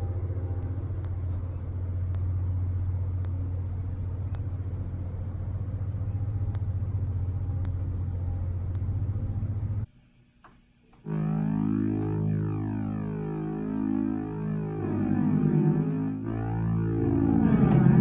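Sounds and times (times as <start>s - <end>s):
faint ticks: 0.6s - 2.4s, 6.4s - 7.9s.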